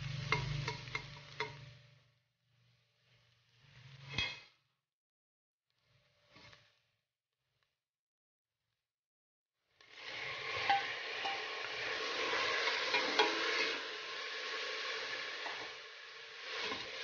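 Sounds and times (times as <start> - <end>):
tomatoes sizzling in hot oil: 0.0 - 4.5, 9.8 - 17.0.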